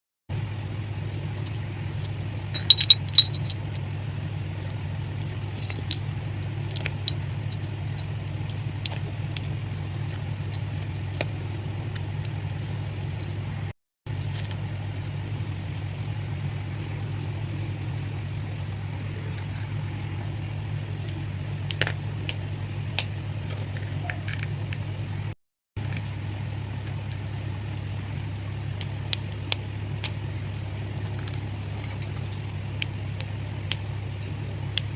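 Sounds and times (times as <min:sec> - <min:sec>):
steady low hum: 0:00.3 - 0:34.9
chalk clicking and crunching: 0:26.8 - 0:34.9.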